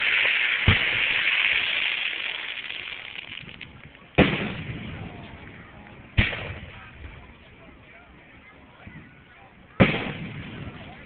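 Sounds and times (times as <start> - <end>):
firework bang: 0.0 - 5.4, 6.2 - 6.9, 9.8 - 11.0
crackling hiss: 0.0 - 7.3
shell burst boom: 4.2 - 5.1.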